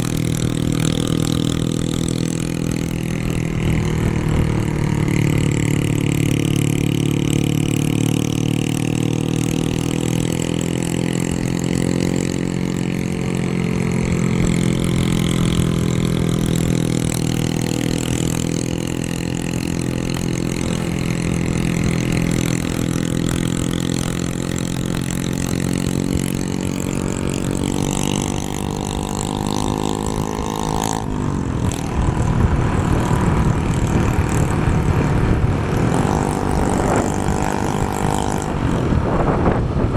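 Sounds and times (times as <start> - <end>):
vehicle engine running: 0.0 - 39.9
wind and road noise: 0.0 - 39.9.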